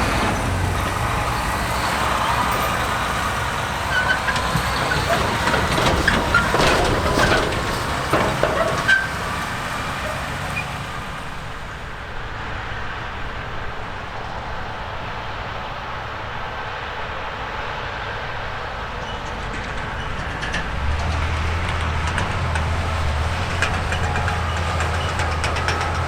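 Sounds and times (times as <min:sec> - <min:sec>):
heavy machinery running: 0:00.0 - 0:12.1, 0:18.2 - 0:26.0
metallic clanks and knocks: 0:00.1 - 0:11.2, 0:19.0 - 0:26.0
short squeaks: 0:00.2 - 0:11.0.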